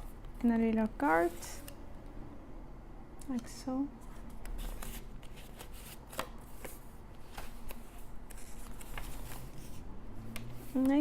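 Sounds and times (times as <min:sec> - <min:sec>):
paper pages rustling: 0:04.0 - 0:09.8.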